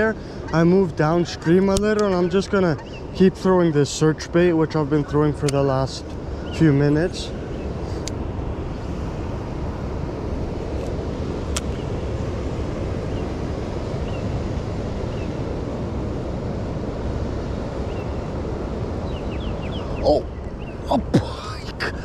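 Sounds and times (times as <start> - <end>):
sharp click: 11.5 - 11.8.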